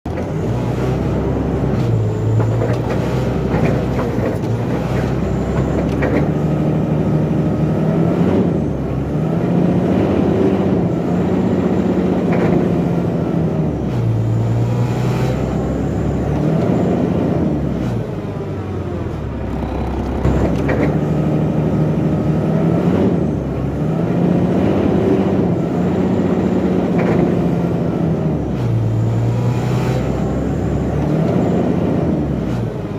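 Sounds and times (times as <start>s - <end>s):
loader engine revving: 0.1s - 32.9s.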